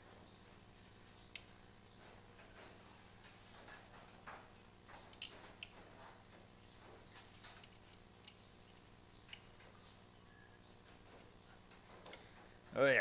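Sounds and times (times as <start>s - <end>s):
faint clicks and light taps: 1.3s - 9.9s.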